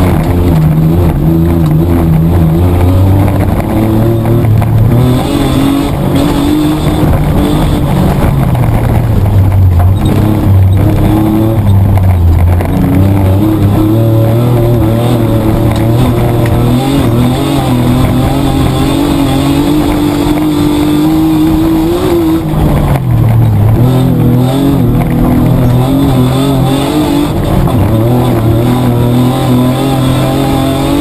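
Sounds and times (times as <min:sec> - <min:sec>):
petrol engine running hard: 0:00.0 - 0:31.0.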